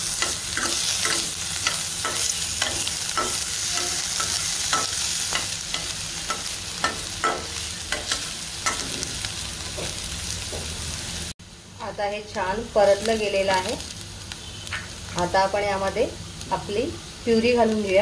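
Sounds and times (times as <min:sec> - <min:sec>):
spices sizzling in a pan: 0:00.0 - 0:18.0
spatula scraping a pan: 0:00.1 - 0:09.2.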